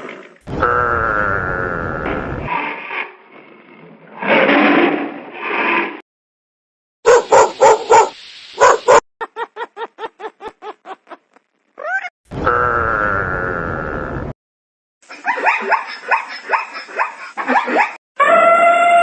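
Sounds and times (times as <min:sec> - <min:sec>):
animal barking calls: 0:07.1 - 0:09.0, 0:15.1 - 0:18.8.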